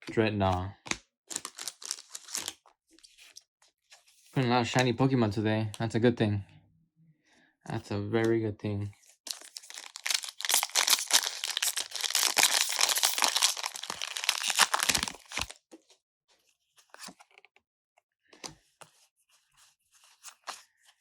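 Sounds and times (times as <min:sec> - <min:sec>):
foil pack tearing and crinkling: 0:01.3 - 0:02.5, 0:09.3 - 0:15.6.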